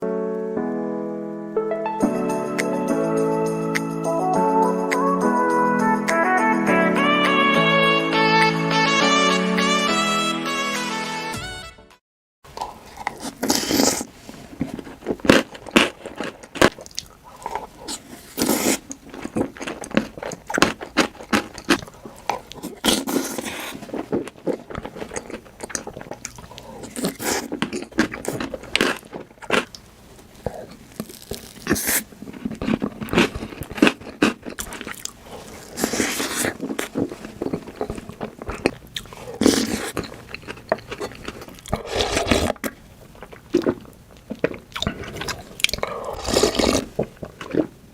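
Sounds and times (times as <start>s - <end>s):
crunching and wet chewing: 12.5s - 47.9s.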